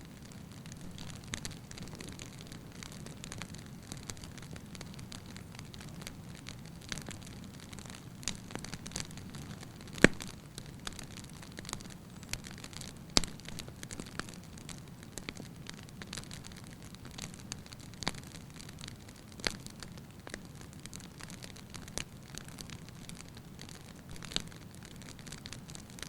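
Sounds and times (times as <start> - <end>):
flames rushing: 0.0 - 11.9
logs crackling and popping: 0.0 - 26.0.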